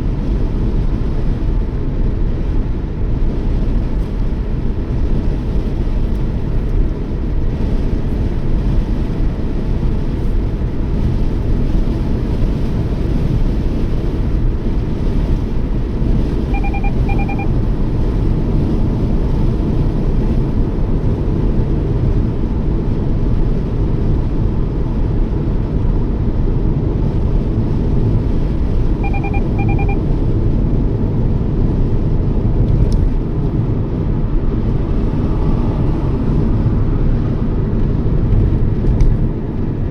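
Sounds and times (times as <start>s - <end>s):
car road and engine rumble: 0.0s - 39.9s
electronic double beep: 16.4s - 17.6s, 29.0s - 30.0s.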